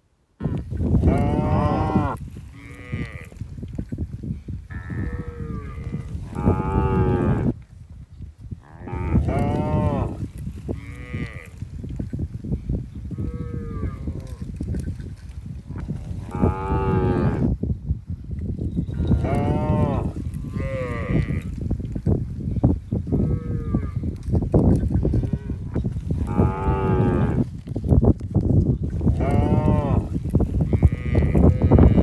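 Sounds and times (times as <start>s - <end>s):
cattle mooing: 1.1s - 3.4s, 4.7s - 7.5s, 8.7s - 10.2s, 16.2s - 17.4s, 19.1s - 21.5s, 26.2s - 27.4s, 29.1s - 30.1s.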